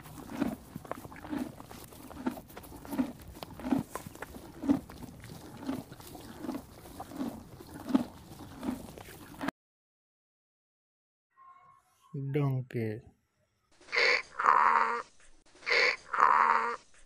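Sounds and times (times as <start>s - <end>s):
horse chewing: 0.0s - 9.5s.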